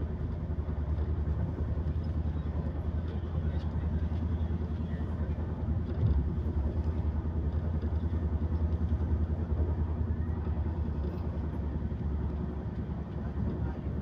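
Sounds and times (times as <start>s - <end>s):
train rumble from inside coach: 0.0s - 14.0s.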